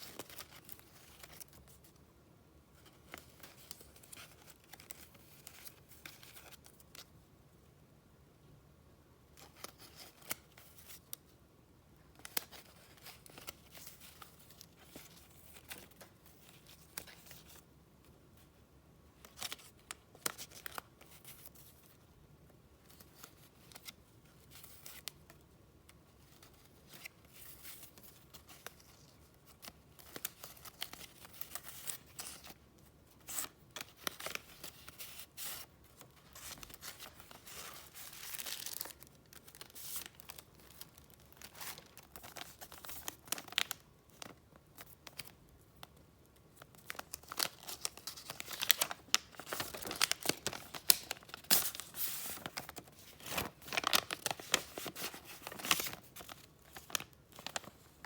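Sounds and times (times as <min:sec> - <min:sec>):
paper and packaging crinkling: 0:26.2 - 0:58.0.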